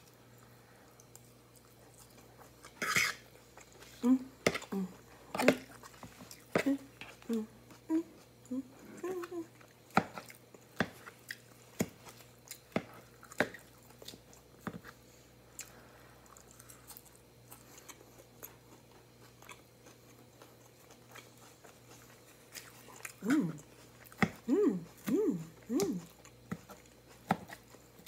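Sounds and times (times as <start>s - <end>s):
person chewing: 0.4s - 14.9s, 15.5s - 28.0s.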